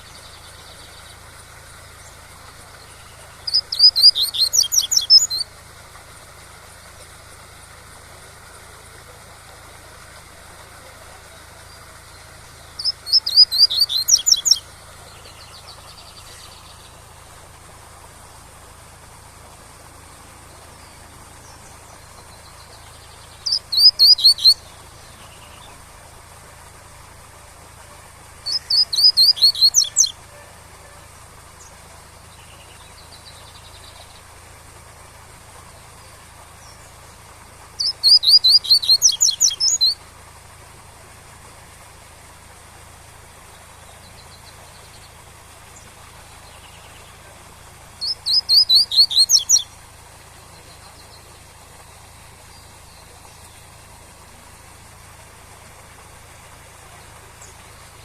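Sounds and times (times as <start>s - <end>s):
bird whistling song: 2.9s - 5.5s, 12.6s - 16.9s, 22.2s - 25.5s, 28.4s - 30.5s, 37.8s - 40.0s, 48.0s - 49.8s.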